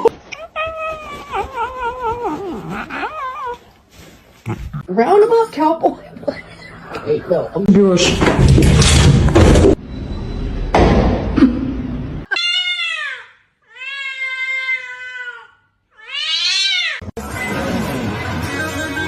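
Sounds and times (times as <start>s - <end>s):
cat meowing: 12.3s - 17.0s.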